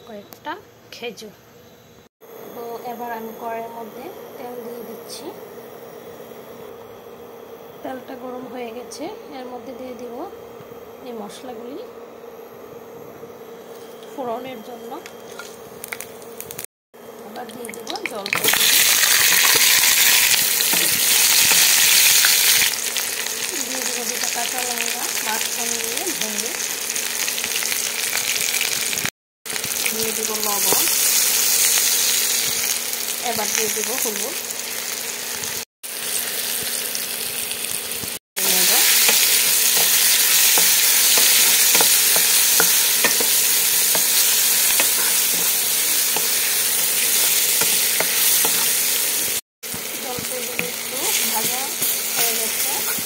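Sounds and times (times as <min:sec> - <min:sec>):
olives sizzling in hot oil: 0:13.4 - 0:53.0
wooden spatula stirring: 0:38.9 - 0:48.8.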